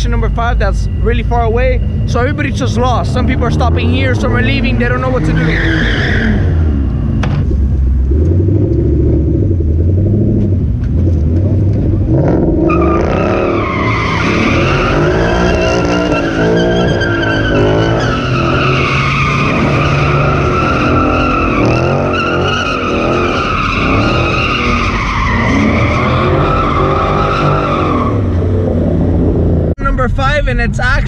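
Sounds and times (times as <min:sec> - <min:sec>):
tyres squealing: 0:00.0 - 0:06.6, 0:12.7 - 0:28.5
car engine revving: 0:00.0 - 0:31.0.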